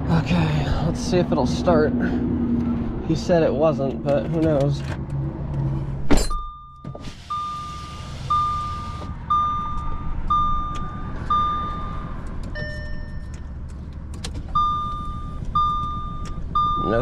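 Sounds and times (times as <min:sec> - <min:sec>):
dashboard warning chime beeping: 0:06.2 - 0:13.6, 0:14.5 - 0:17.0.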